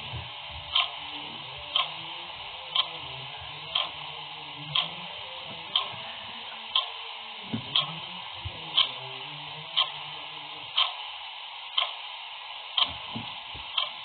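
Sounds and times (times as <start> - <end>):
steady hiss: 0.0 - 14.0
clock ticking: 0.7 - 1.0, 1.7 - 2.0, 2.7 - 3.0, 3.7 - 4.1, 4.7 - 5.0, 5.7 - 6.0, 6.7 - 7.0, 7.7 - 8.0, 8.7 - 9.0, 9.8 - 10.0, 10.7 - 11.0, 11.7 - 12.0, 12.7 - 14.0.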